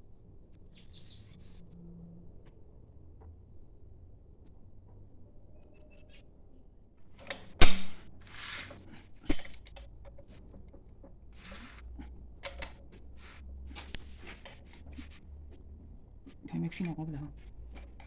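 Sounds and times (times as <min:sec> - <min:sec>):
metal tools clanking: 0:07.1 - 0:10.7, 0:11.4 - 0:15.1
light metal clinks and scraping: 0:07.1 - 0:18.0
metal knock: 0:07.2 - 0:08.1, 0:09.3 - 0:09.8.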